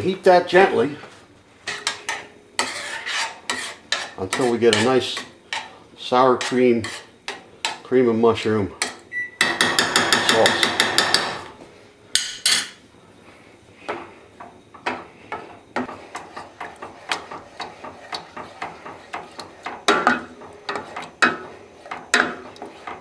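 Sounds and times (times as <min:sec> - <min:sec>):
utensil stirring sauce in saucepan: 0:01.7 - 0:07.9, 0:14.4 - 0:23.0.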